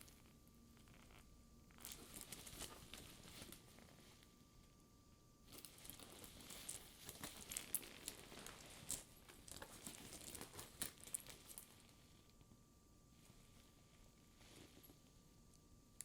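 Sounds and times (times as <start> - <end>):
leather purse crackly rustling: 1.8 - 4.0, 5.5 - 11.9.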